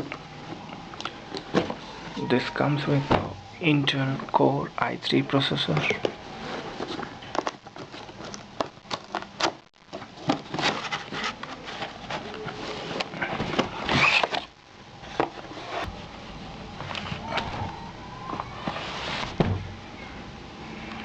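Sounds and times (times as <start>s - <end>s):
packaging rustling and crackling: 5.9s - 15.8s.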